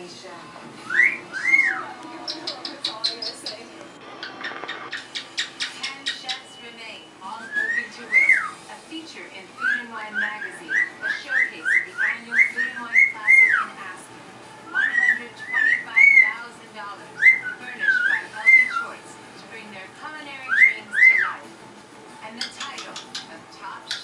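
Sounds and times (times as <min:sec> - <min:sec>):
pet bird whistling: 0:00.8 - 0:08.6, 0:09.5 - 0:13.8, 0:14.7 - 0:16.5, 0:17.2 - 0:19.0, 0:20.3 - 0:21.4, 0:22.4 - 0:24.0.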